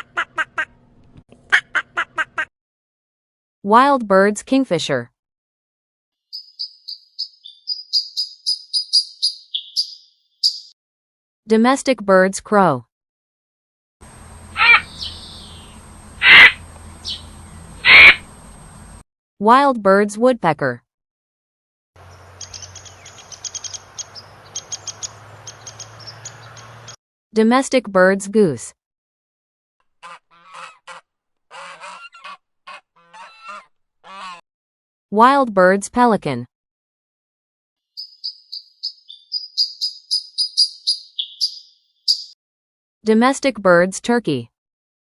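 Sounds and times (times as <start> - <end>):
bird whistling calls: 6.3 - 10.7, 14.6 - 18.3, 38.0 - 42.4
woodpecker tapping: 6.3 - 10.7, 22.4 - 27.0, 38.0 - 42.3
low hum: 14.0 - 19.0.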